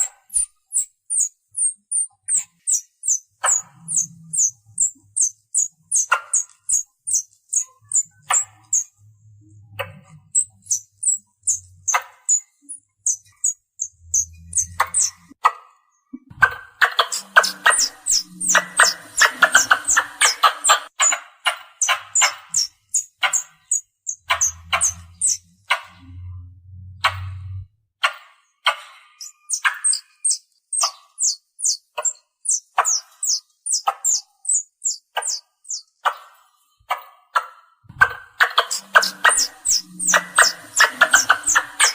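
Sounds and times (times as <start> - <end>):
squirrel chirping: 0.0 - 15.4, 16.4 - 26.0, 28.6 - 37.0, 38.0 - 41.9.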